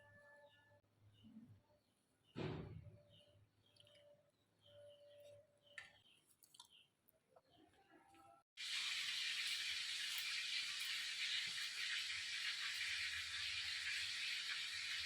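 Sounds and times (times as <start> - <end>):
kebabs sizzling in oil: 8.6 - 15.0.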